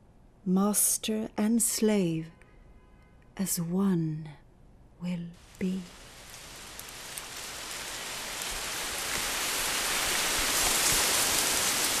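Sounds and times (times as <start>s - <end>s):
rushing hiss: 5.4s - 12.0s.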